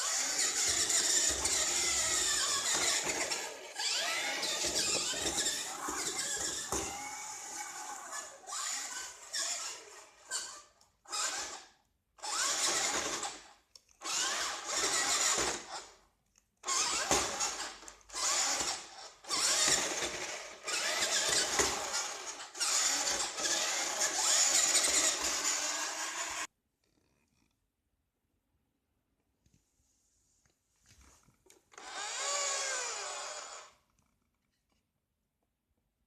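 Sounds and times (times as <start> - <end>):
toy truck electric motor whirring: 0.0 - 16.0, 16.6 - 26.5, 31.7 - 33.8.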